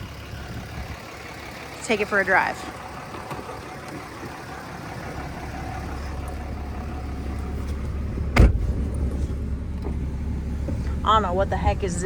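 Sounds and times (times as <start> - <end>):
diesel engine running: 0.0 - 12.0
sharp thump: 8.3 - 9.0.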